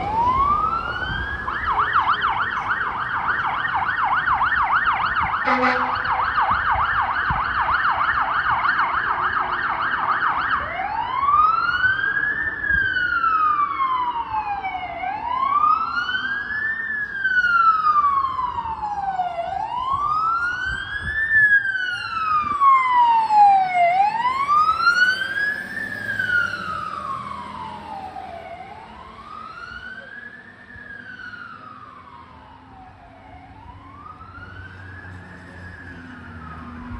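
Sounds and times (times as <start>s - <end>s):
fire engine siren wailing: 0.0s - 36.9s.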